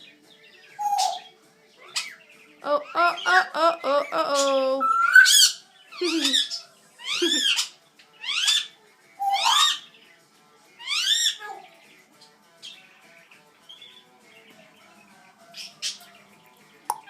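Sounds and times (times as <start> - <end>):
parrot whistled calls: 4.8 - 9.8.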